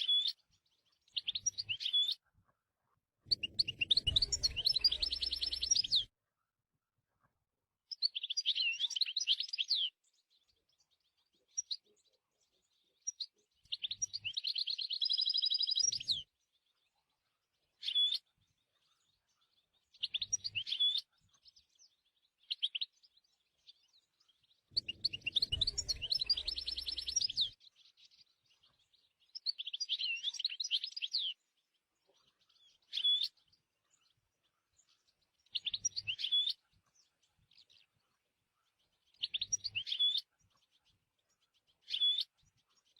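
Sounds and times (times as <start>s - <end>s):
goldfinch twittering song: 0.0s - 2.2s, 3.3s - 6.1s, 7.9s - 42.9s.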